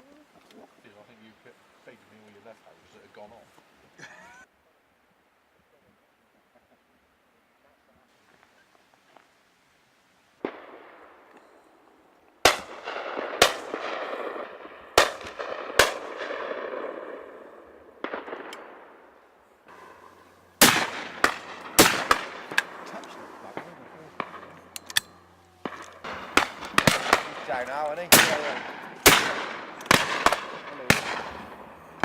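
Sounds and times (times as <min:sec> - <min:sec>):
shotgun shots with rolling echo: 0:10.4 - 0:32.0
low steady hum: 0:18.6 - 0:32.0.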